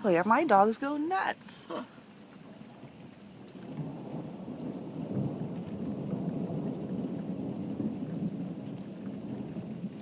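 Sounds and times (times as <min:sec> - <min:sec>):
steady rain: 0:00.0 - 0:10.0
thunder rumbling: 0:02.0 - 0:10.0.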